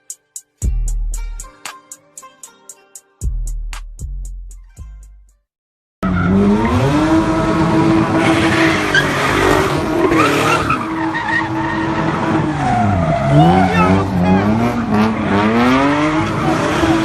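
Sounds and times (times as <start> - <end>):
car engine revving hard: 6.0 - 17.0
tires squealing and skidding: 6.0 - 17.0.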